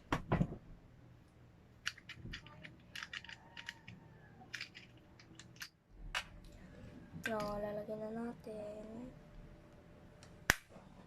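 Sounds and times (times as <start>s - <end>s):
stand parts clicking and knocking: 1.8s - 6.4s.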